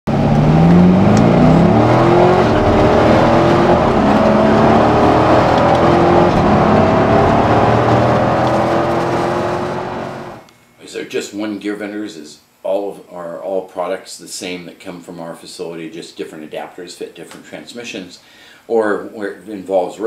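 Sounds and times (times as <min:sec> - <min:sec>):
car engine revving: 0:00.1 - 0:10.4.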